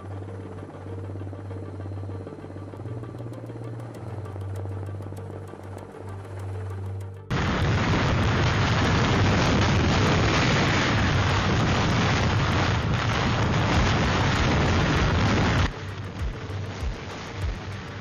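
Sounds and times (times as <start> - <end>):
wind buffeting microphone: 7.3 - 18.0.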